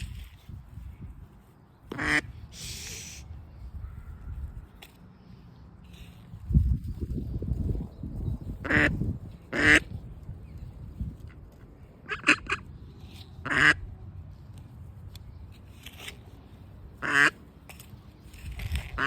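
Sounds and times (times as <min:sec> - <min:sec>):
duck quacking: 0:01.9 - 0:02.3, 0:08.6 - 0:09.8, 0:12.0 - 0:12.7, 0:13.4 - 0:13.8, 0:17.0 - 0:17.4.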